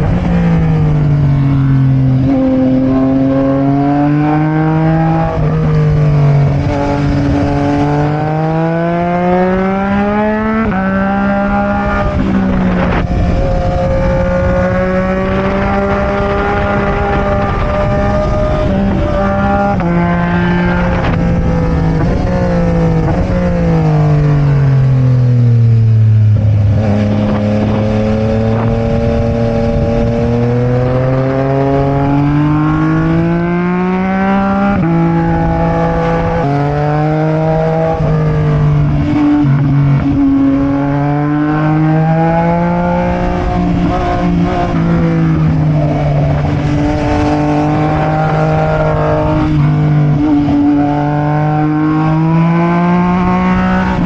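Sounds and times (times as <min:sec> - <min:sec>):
motorcycle engine revving: 0:00.0 - 0:54.0
wind noise over microphone: 0:00.0 - 0:54.0.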